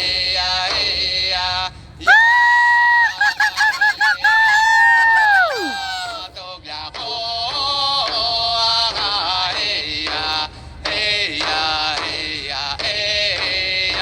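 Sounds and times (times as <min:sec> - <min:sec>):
voices chanting: 0:02.1 - 0:06.3.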